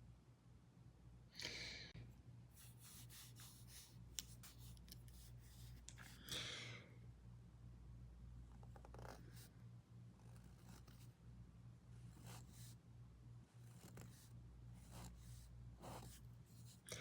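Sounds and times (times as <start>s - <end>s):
drawing tool scratching paper: 2.6s - 5.7s, 10.2s - 11.1s, 12.1s - 12.8s, 13.6s - 16.8s.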